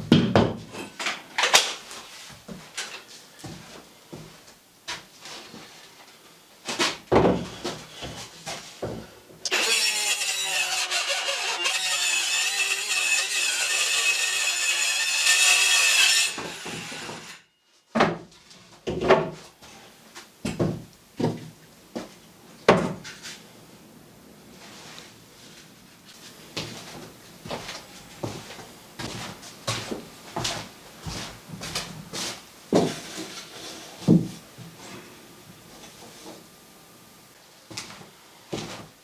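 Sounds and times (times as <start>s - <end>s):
power tool running: 9.5s - 17.3s.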